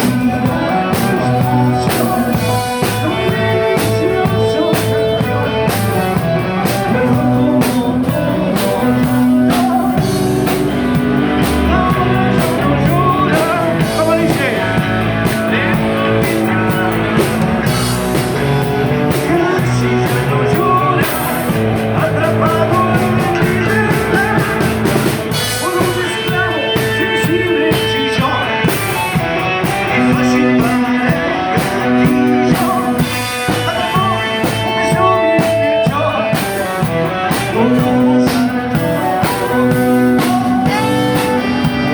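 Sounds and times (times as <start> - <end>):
person singing: 0.0 - 41.9
rock band playing live: 0.0 - 41.9.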